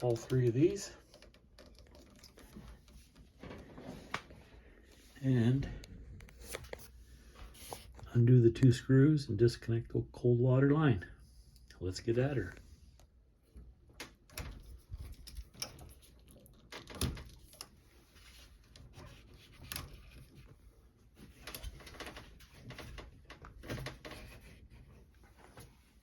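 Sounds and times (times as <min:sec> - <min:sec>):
clicks and rattles of hands working: 0:00.0 - 0:04.4, 0:12.4 - 0:26.0.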